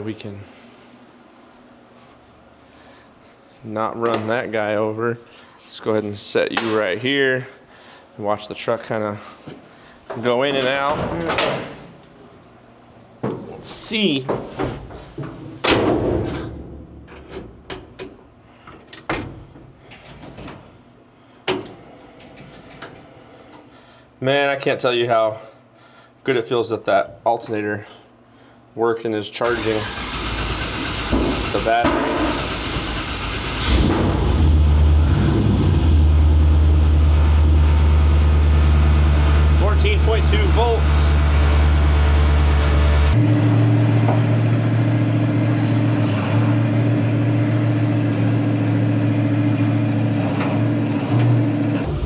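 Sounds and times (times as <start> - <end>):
pickup engine idling: 35.9 - 51.8.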